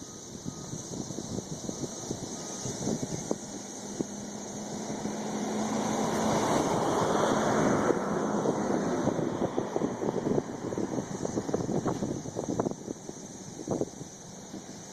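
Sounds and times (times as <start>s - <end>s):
cicadas buzzing: 0.0s - 14.9s
wind buffeting microphone: 0.0s - 14.9s
vehicle passing: 3.2s - 12.3s.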